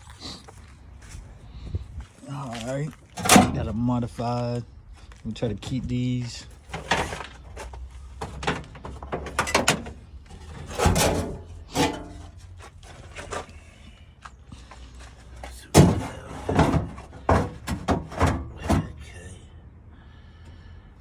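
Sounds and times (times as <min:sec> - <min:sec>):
tools knocking and clunking: 0:03.2 - 0:03.7, 0:06.7 - 0:12.4, 0:15.4 - 0:19.0.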